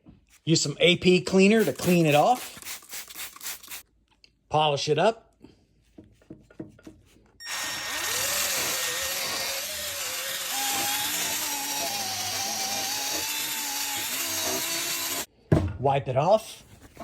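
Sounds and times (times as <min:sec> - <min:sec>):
power tool polishing metal: 0:07.4 - 0:15.3.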